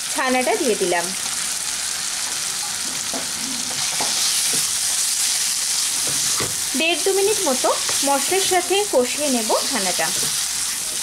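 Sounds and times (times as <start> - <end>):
cheese sizzling in oil: 0.0 - 11.0
spatula scraping pan: 9.6 - 11.0.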